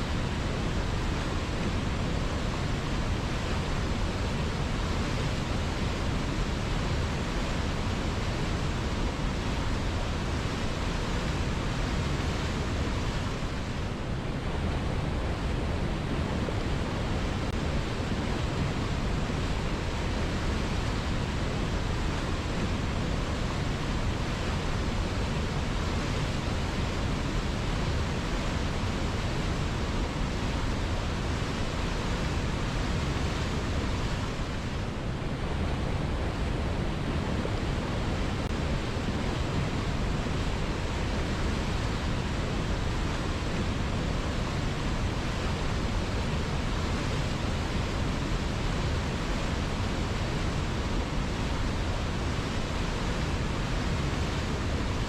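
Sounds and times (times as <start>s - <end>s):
river flowing: 0.0s - 55.0s.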